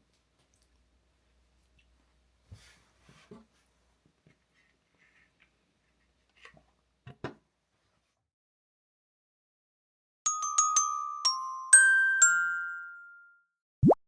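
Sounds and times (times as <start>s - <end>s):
glockenspiel-like music: 10.3s - 13.6s.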